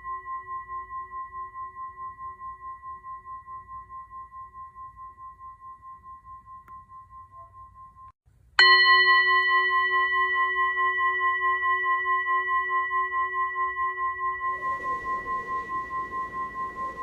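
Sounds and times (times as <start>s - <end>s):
singing bowl ringing: 0.0s - 17.0s
faint hiss: 14.5s - 17.0s.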